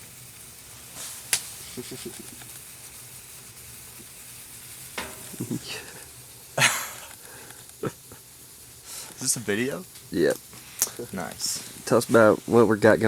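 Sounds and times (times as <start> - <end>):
wood stove fire crackling: 0.0 - 13.0
breathy burst: 5.3 - 7.7.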